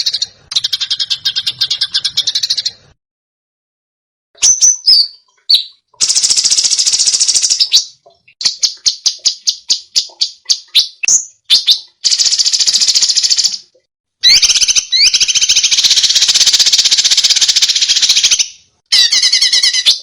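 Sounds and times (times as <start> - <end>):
songbird singing: 4.4 - 20.0.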